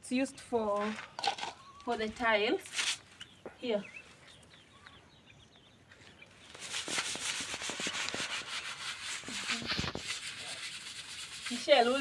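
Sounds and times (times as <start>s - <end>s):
broom scrubbing a tile floor: 6.6s - 12.0s.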